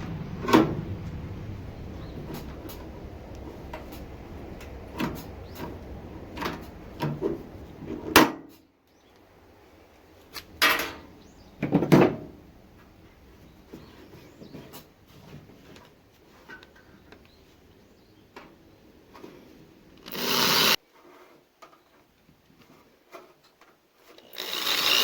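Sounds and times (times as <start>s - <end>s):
objects knocking and clunking: 0.0s - 8.6s, 10.4s - 13.0s.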